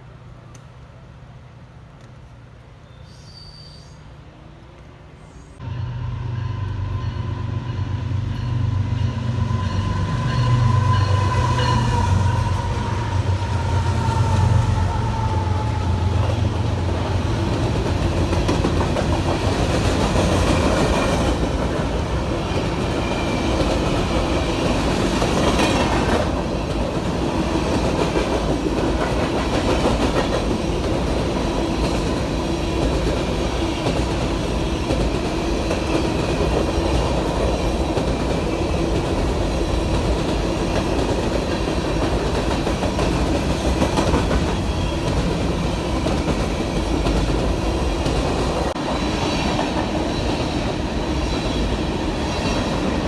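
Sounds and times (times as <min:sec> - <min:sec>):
train wheels clattering over rails: 0:15.4 - 0:53.0.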